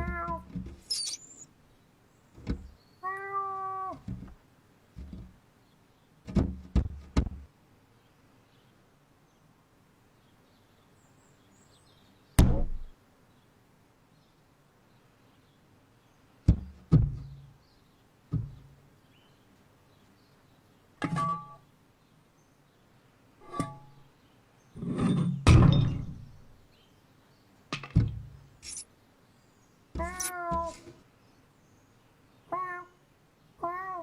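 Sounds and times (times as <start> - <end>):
wavering cat-like call: 0.0 - 1.4, 3.0 - 4.0, 30.0 - 30.8, 32.5 - 33.0, 33.6 - 34.0
cartoon thuds and knocks: 12.4 - 12.9.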